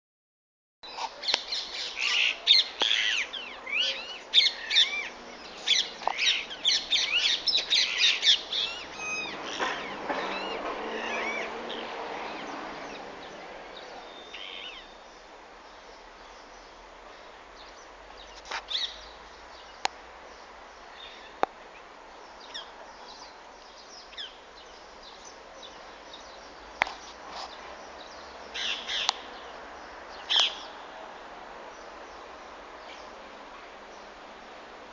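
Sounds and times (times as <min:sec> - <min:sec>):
parrots screeching: 0:01.8 - 0:11.5.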